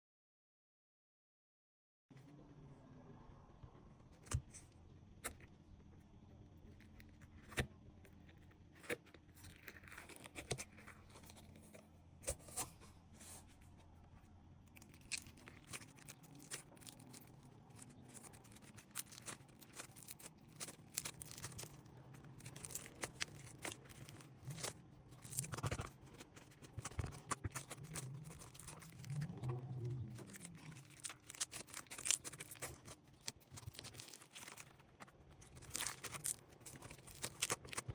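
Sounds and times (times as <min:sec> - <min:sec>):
slime crackling and popping: 0:14.7 - 0:37.9.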